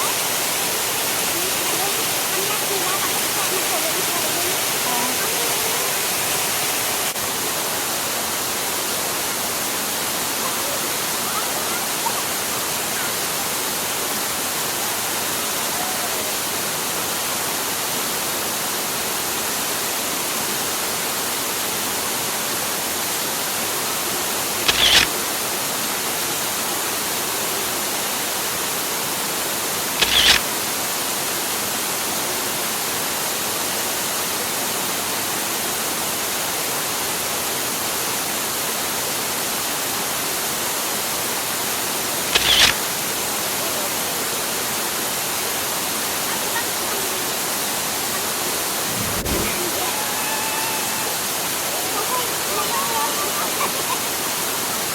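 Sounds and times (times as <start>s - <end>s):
hiss-like bursts: 0.0s - 7.2s, 24.4s - 25.3s, 30.0s - 30.4s, 42.3s - 42.9s, 48.3s - 52.3s
waterfall rushing: 0.0s - 54.9s.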